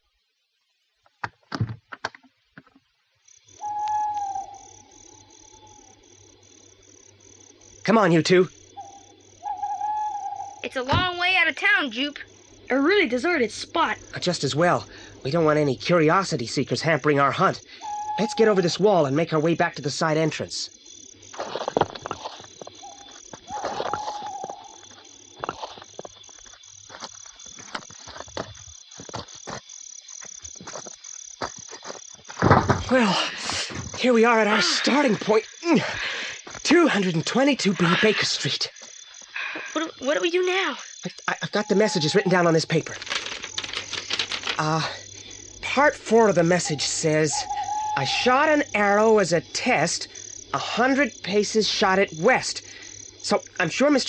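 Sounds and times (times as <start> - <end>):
crickets chirping: 0.0 - 54.0
held whistling tone: 3.6 - 4.6, 17.8 - 18.8, 41.6 - 42.4, 46.6 - 48.2
footsteps: 21.3 - 34.0
scuffs and knocks: 21.4 - 33.0.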